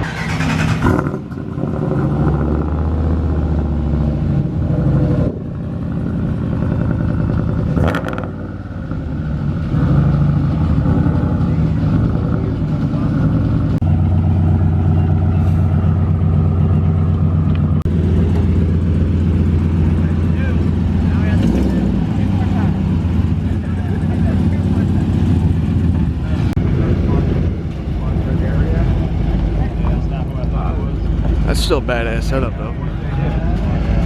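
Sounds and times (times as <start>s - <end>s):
vehicle engines running: 0.0s - 34.0s
people's voices: 10.7s - 14.1s, 19.5s - 34.0s.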